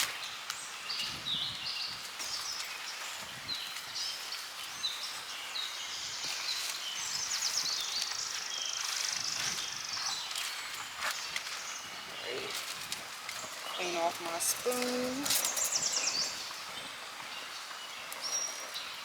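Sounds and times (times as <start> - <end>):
outdoor background hiss: 0.0 - 19.0
wild birds singing and chirping: 0.0 - 19.0.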